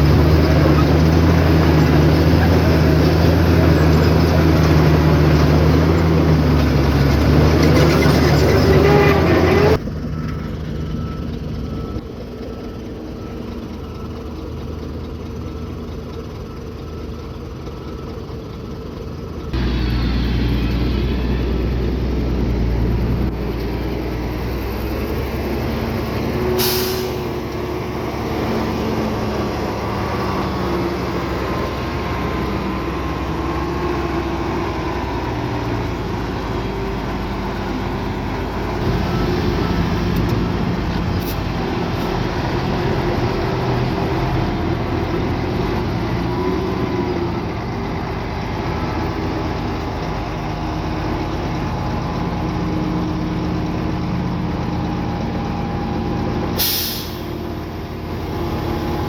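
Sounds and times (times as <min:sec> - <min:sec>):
heavy diesel engines running: 0:00.0 - 0:59.0
sharp hiss of air: 0:56.6 - 0:57.4.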